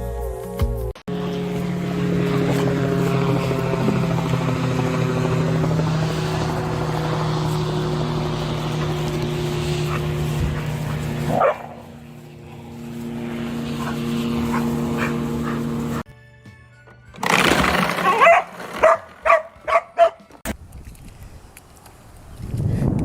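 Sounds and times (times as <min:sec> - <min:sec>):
motor-like drone: 0:01.1 - 0:16.1
dog yipping: 0:11.3 - 0:11.8, 0:18.0 - 0:20.3.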